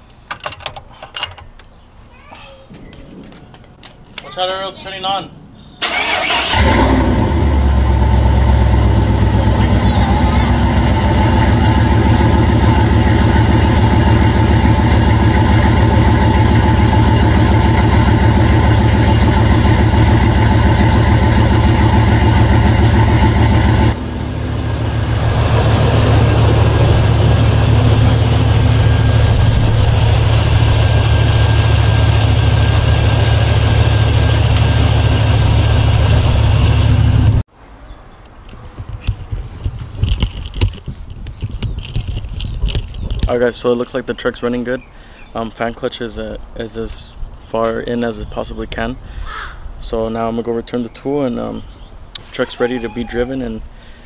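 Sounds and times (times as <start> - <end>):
truck engine starting and idling: 5.8 - 37.5.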